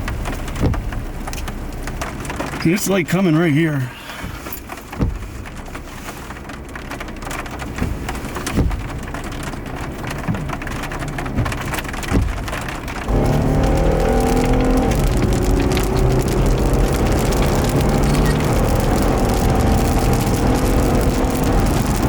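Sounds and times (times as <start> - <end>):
rain pattering on car roof: 0.0 - 22.0
car engine driving off: 10.2 - 22.0.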